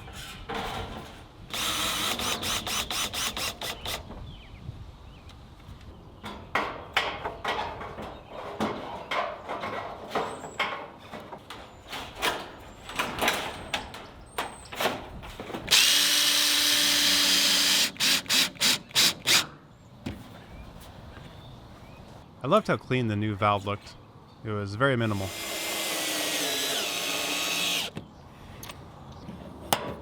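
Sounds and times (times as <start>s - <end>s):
cordless drill driving screw: 1.5s - 4.0s, 15.7s - 19.5s, 25.2s - 28.0s
metal siding panels clicking: 6.2s - 19.6s.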